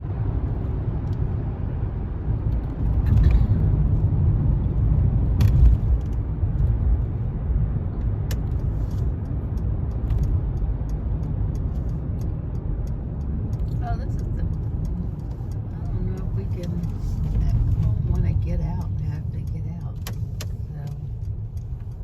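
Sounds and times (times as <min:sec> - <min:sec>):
car engine rumbling: 0:00.0 - 0:22.0
sharp clicks: 0:07.9 - 0:22.0.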